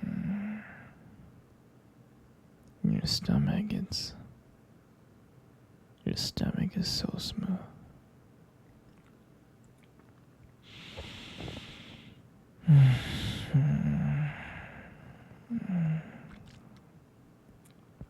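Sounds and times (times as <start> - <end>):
man humming softly: 0.0 - 1.0, 12.6 - 16.6
man sighing: 0.0 - 1.0, 10.7 - 16.6
man breathing close to microphone: 10.6 - 16.4.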